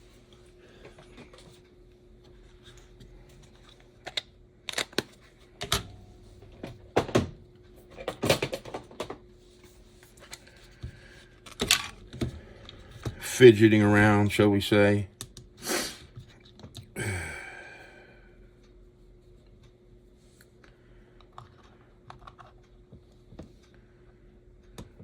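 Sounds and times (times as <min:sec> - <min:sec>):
small parts clicking and tapping: 0:21.2 - 0:23.7.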